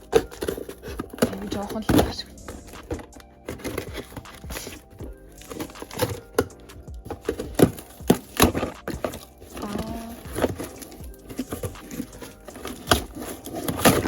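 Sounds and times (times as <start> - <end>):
boxes clicking and knocking: 0.0 - 14.0
packaging crinkling: 0.0 - 14.0.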